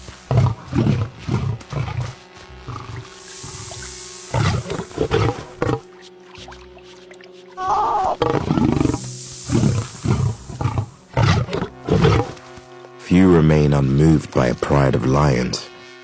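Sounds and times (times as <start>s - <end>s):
lions growling and snarling: 0.0s - 5.9s, 8.0s - 12.5s
background music: 0.0s - 16.0s.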